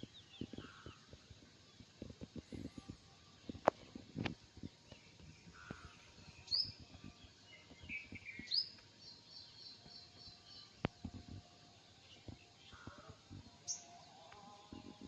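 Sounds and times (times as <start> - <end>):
small bird chirping: 4.6 - 14.0.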